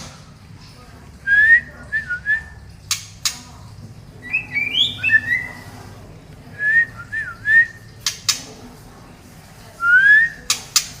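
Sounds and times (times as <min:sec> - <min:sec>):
bird singing whistled phrases: 0:04.2 - 0:05.6, 0:09.8 - 0:10.5.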